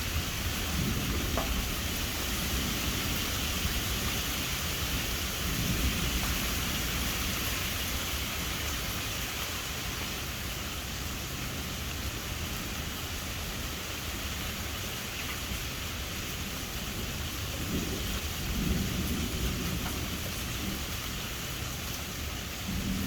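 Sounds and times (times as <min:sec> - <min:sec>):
low thunder rumble: 0:00.0 - 0:07.7, 0:16.6 - 0:23.0
steady rain falling: 0:00.0 - 0:23.0.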